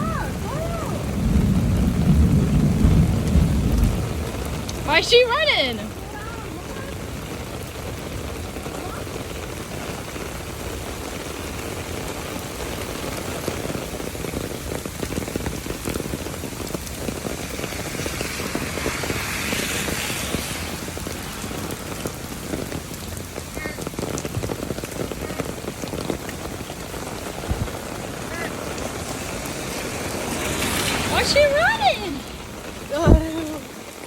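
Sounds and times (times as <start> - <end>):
rain falling: 0.0 - 34.0.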